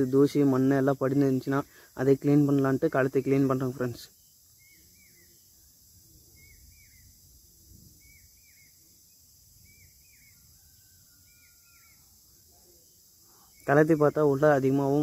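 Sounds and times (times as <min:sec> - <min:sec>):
high hiss of insects: 0:00.0 - 0:15.0.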